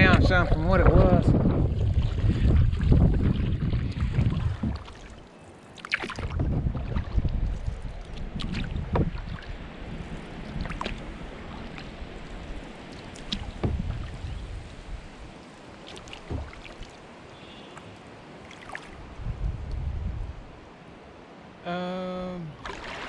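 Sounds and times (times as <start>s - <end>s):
wind on microphone: 0.0s - 5.2s, 6.0s - 16.9s, 18.9s - 20.6s
paddle splashing: 0.0s - 19.2s, 22.5s - 23.0s
water dripping and slapping: 0.0s - 19.8s, 22.6s - 23.0s.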